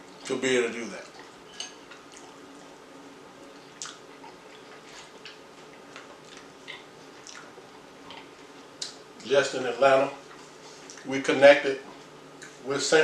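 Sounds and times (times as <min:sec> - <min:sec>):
person chewing: 0:03.8 - 0:09.0.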